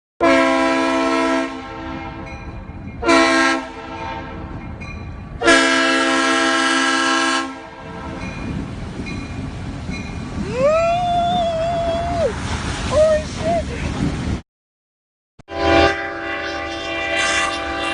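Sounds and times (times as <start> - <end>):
train horn blasts: 0.2 - 2.4, 3.0 - 4.6, 5.4 - 8.4, 15.5 - 17.9.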